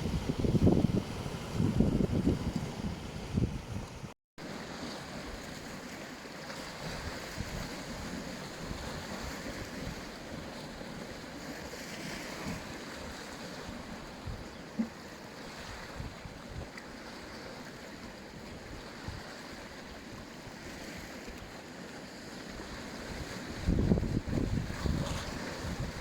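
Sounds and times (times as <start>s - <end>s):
wind rumble on microphone: 0.0s - 4.1s, 6.8s - 10.7s, 22.6s - 26.0s
waves washing onto beach: 2.4s - 26.0s.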